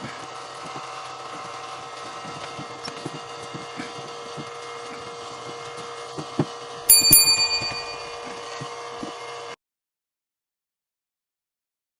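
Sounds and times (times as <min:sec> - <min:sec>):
metal tool striking metal: 0:06.9 - 0:08.4
steady hum: 0:06.9 - 0:08.5.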